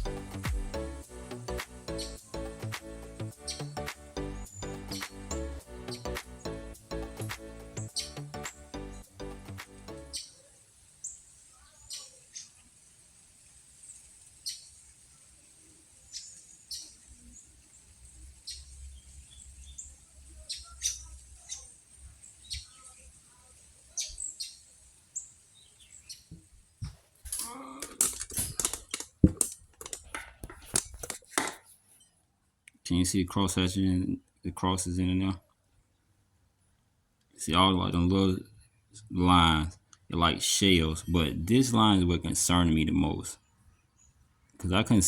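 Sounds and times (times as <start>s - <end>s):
short high bird chirps: 1.5s - 2.7s, 3.3s - 6.6s, 7.2s - 9.0s, 9.6s - 10.4s
metal clicks and clinks: 27.3s - 30.2s.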